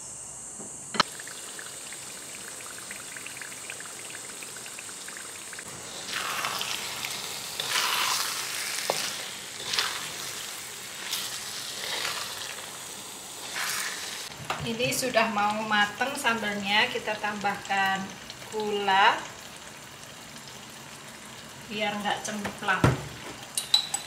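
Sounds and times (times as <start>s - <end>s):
paste sizzling in a wok: 1.0s - 23.6s
spatula stirring paste: 6.0s - 12.6s.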